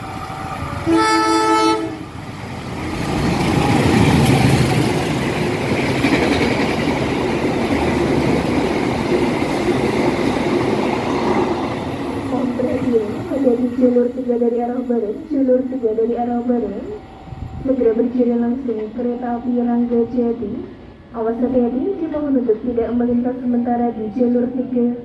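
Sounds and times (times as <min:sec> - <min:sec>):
passing train rumble: 0:00.0 - 0:25.0
train horn blast: 0:00.8 - 0:02.1.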